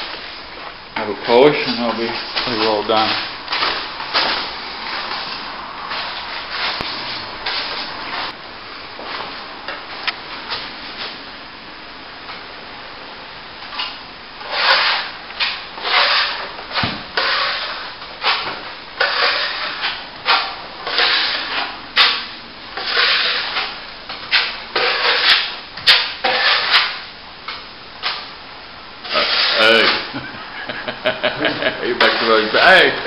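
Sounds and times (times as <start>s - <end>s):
trowel scraping plaster: 14.4s - 27.0s, 29.0s - 30.1s, 31.9s - 33.0s.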